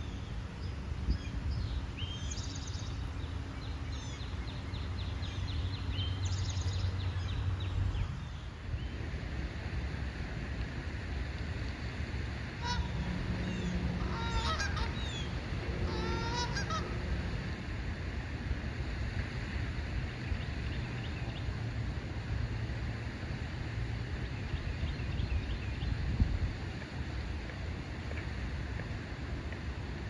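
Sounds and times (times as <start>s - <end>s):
low background rumble: 0.0s - 30.0s
geese honking: 12.6s - 17.1s.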